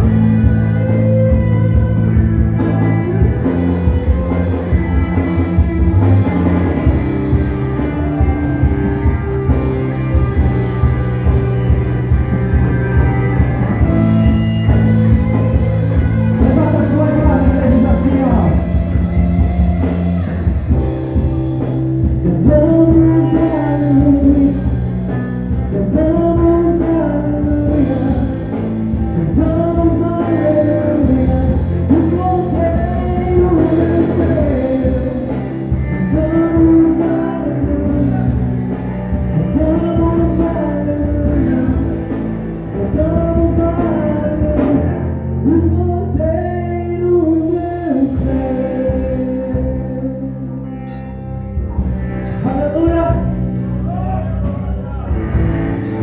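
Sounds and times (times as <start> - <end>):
sustained bass notes: 0.0 - 56.0
worship band playing slow song: 0.0 - 56.0.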